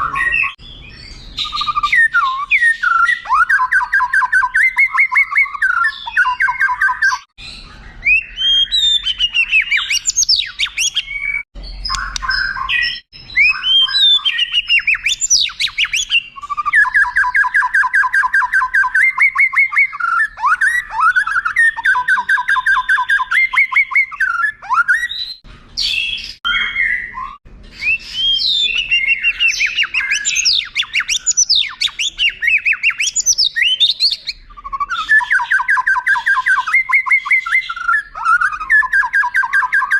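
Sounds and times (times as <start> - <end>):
bird singing trills and whistles: 0.0 - 39.9.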